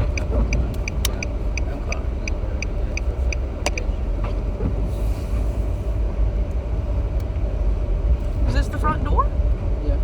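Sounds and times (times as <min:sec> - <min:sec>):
car warning chime dinging: 0:00.0 - 0:04.0
car cabin rumble: 0:00.0 - 0:07.1.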